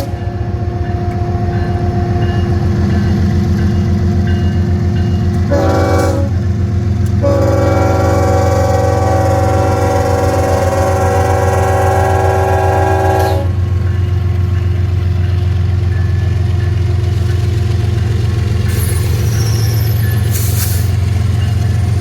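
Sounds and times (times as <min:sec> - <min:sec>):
locomotive horn: 0:00.0 - 0:02.4, 0:05.4 - 0:13.7
diesel locomotive rumble: 0:00.0 - 0:22.0.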